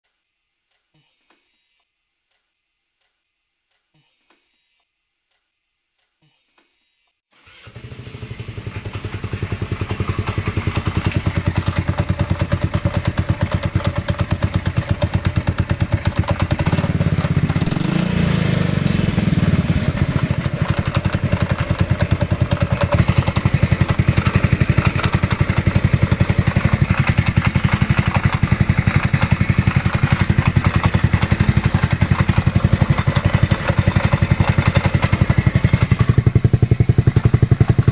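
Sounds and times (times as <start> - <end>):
scooter engine starting and running: 7.4 - 37.9
engine knock: 8.1 - 37.9.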